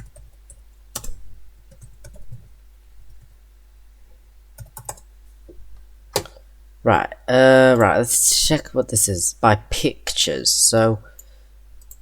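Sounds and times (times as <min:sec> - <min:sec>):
steady low hum: 0:00.0 - 0:12.0
computer keyboard clicks: 0:01.0 - 0:02.3, 0:04.6 - 0:05.0.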